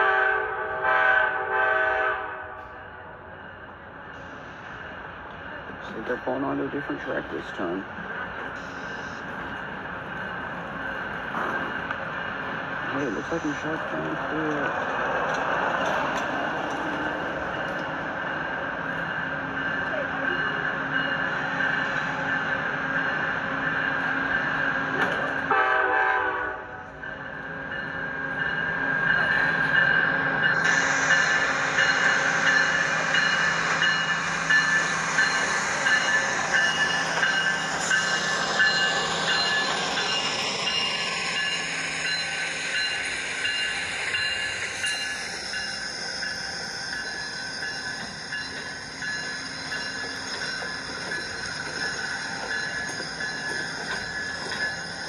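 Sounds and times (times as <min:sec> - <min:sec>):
train wheels and cars passing: 0:00.0 - 0:55.0
high steady tones: 0:27.1 - 0:55.0.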